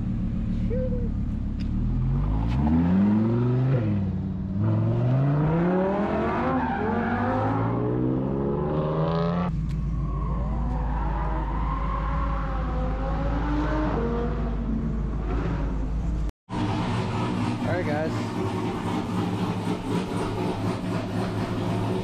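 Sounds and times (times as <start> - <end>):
engine idling rumble: 0.0 - 2.0
car engine revving: 0.0 - 22.0.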